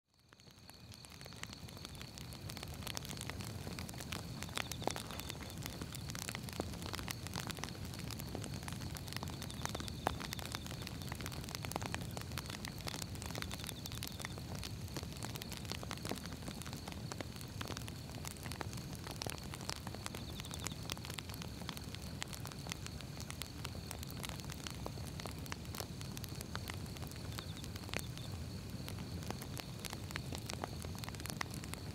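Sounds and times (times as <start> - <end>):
wood fire crackling and popping: 0.1 - 31.9
low rumble of flames: 0.2 - 31.9.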